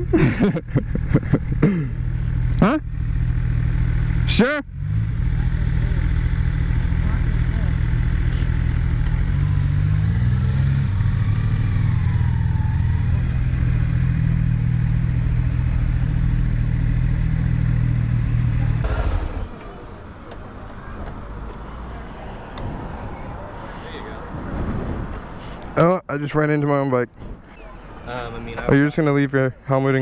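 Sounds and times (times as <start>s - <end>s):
motorcycle engine running: 1.0s - 19.9s.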